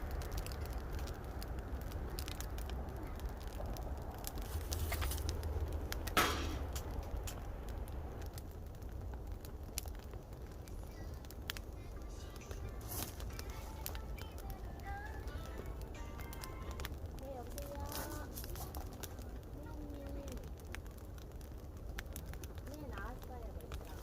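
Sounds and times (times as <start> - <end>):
wood fire crackling: 0.0 - 24.0
loud pop and hiss: 6.0 - 6.9.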